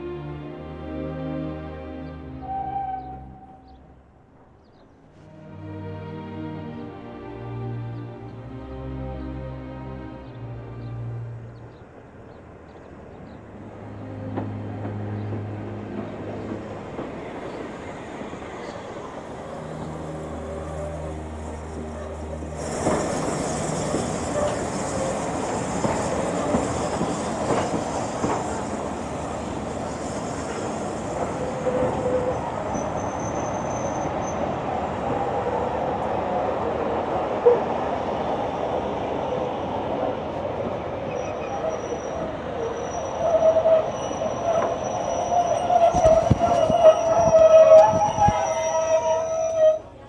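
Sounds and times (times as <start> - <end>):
train rumbling on rails: 0.0 - 50.0
train wheel squeal: 20.0 - 36.4, 38.5 - 50.0.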